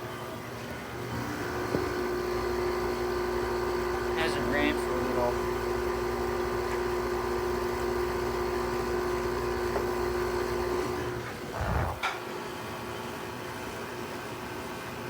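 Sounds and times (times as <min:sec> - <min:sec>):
air conditioner motor humming: 0:01.0 - 0:12.1.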